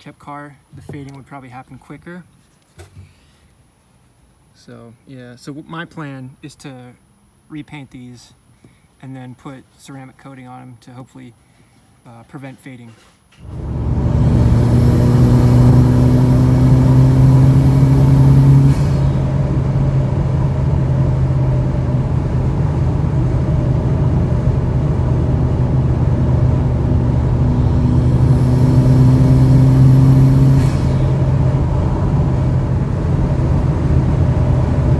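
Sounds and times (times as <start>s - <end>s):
car engine running under load: 13.4s - 34.9s.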